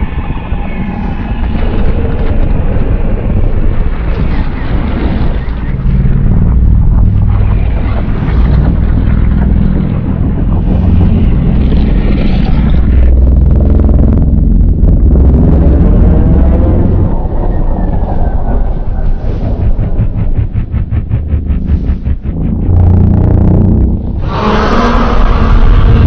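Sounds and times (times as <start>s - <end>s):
deep monster growl: 4.8s - 26.0s.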